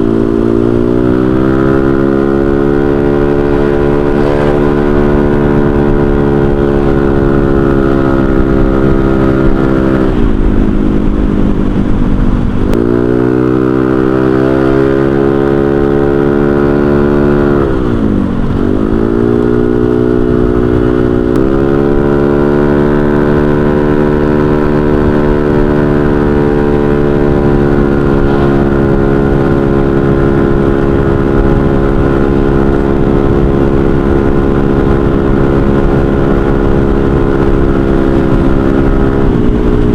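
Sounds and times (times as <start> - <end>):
scooter engine riding: 0.0 - 39.9.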